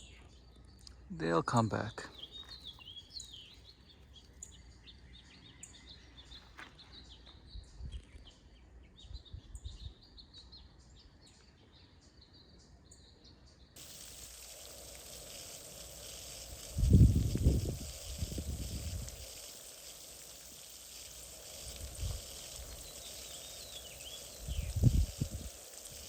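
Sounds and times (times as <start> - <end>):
small birds chirping: 0.0 - 26.0
steady hiss: 13.8 - 26.0.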